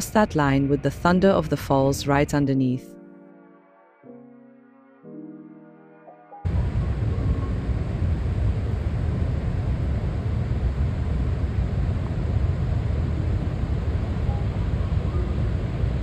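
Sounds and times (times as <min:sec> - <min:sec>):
waterfall rumble: 0:06.5 - 0:16.0.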